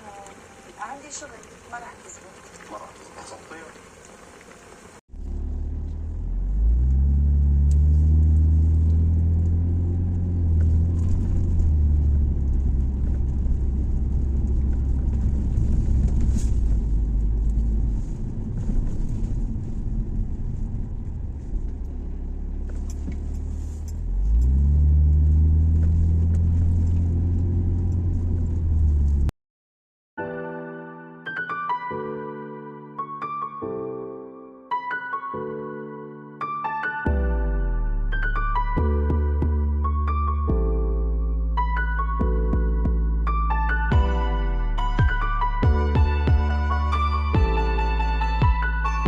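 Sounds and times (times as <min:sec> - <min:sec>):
car engine accelerating: 0:04.6 - 0:29.3, 0:43.4 - 0:49.0.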